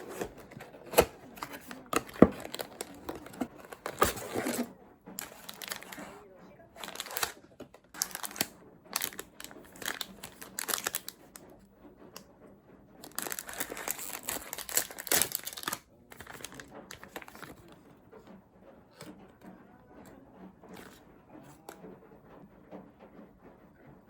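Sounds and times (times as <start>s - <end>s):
packaging crinkling and rustling: 0.0s - 11.5s, 13.0s - 17.8s.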